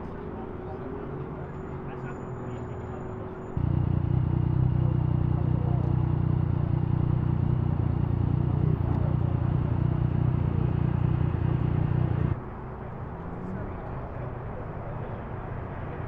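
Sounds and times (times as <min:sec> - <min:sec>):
motorcycle engine running: 0:03.6 - 0:12.4.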